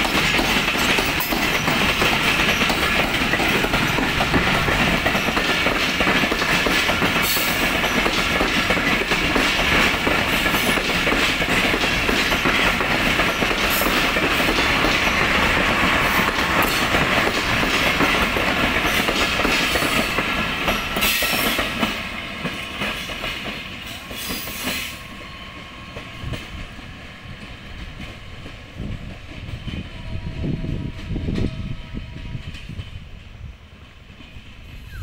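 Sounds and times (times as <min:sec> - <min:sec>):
train wheels clattering over rail joints: 0:00.0 - 0:25.3.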